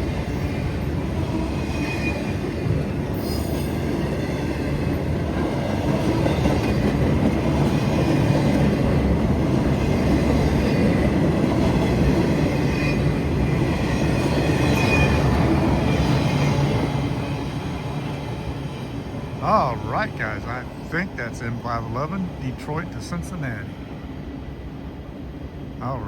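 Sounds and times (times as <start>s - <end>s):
faint high wheel squeal: 3.2s - 3.9s.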